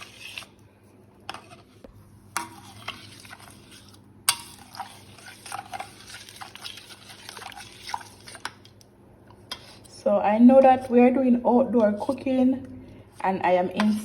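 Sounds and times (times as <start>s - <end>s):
utensil scraping container: 0.0s - 0.6s, 2.4s - 8.8s, 9.5s - 10.0s.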